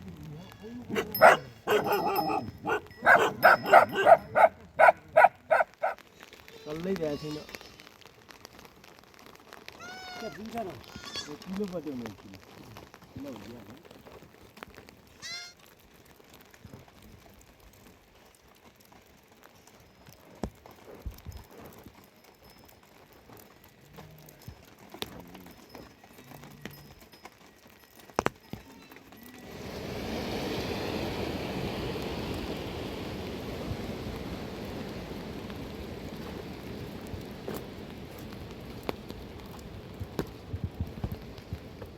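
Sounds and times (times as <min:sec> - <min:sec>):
heavy rain falling: 0:00.0 - 0:18.2, 0:28.7 - 0:41.9
faint rustling and clicks: 0:00.0 - 0:29.4, 0:35.4 - 0:41.9.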